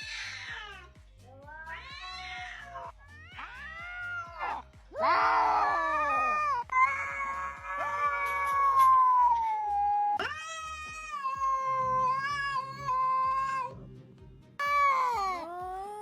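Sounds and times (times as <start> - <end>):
cat yowling meows: 0.0 - 13.7
background music with steady beat: 0.0 - 16.0.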